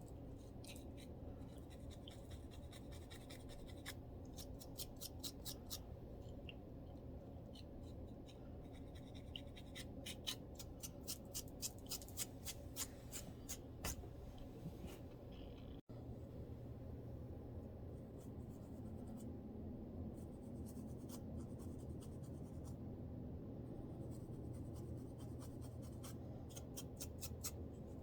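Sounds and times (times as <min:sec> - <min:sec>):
steady low hum: 0:00.0 - 0:28.0
fingers scratching scalp: 0:00.5 - 0:05.8, 0:07.8 - 0:14.0.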